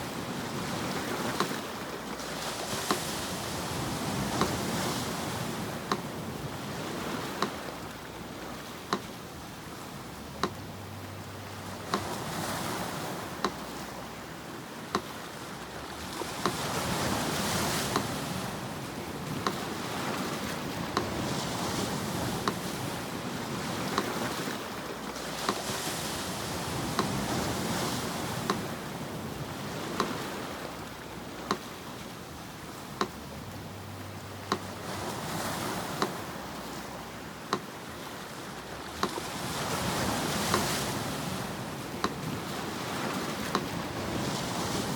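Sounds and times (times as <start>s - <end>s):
sea surf washing: 0.0s - 44.9s
metronome ticking: 3.7s - 20.2s, 20.8s - 22.9s, 26.7s - 28.8s, 29.8s - 44.0s.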